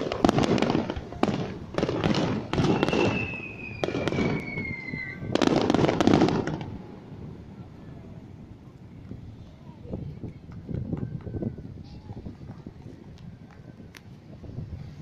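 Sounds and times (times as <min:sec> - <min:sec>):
firework shells bursting: 0:00.0 - 0:06.8
firework crackling: 0:00.0 - 0:15.0
falling firework whistle: 0:02.5 - 0:05.8.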